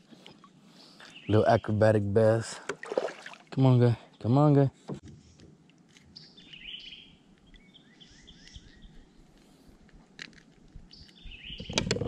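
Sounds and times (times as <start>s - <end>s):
wild birds chirping: 0.0s - 3.3s, 6.0s - 9.8s, 10.9s - 12.0s.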